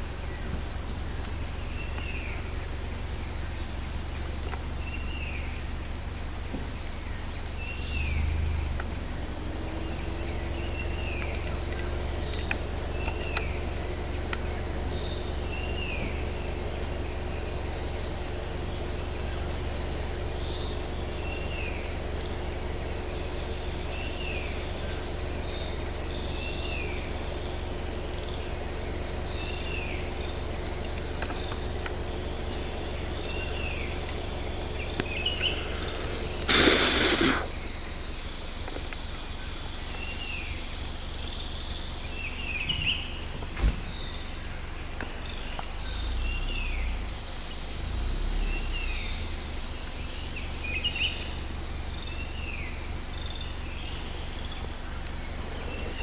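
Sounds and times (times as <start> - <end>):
bird short falling call: 35.4 - 37.6.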